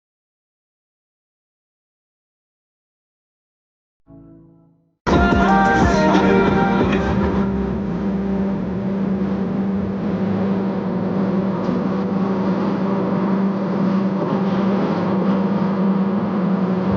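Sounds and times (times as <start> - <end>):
steady engine drone: 5.1 - 16.9.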